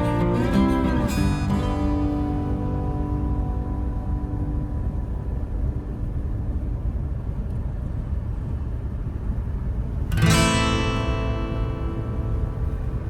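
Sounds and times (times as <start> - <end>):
held music notes: 0.0 - 7.3, 10.2 - 13.0
road and tyre rumble: 0.0 - 13.0.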